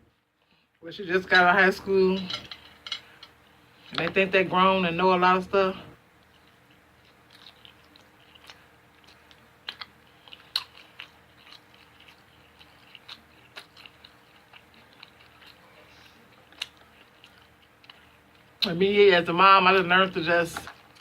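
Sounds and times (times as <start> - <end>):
person chewing: 6.2 - 18.7, 20.7 - 21.0.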